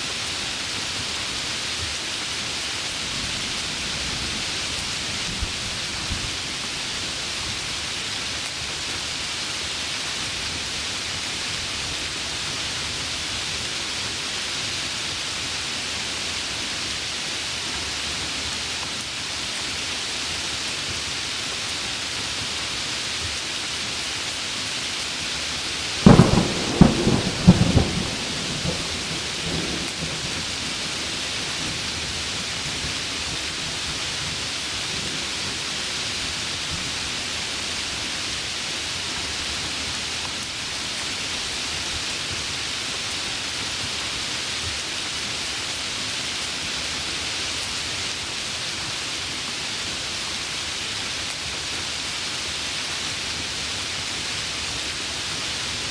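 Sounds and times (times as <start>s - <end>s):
heavy rain hissing: 0.0s - 55.9s
thunderclap cracking and rumbling: 26.0s - 32.4s.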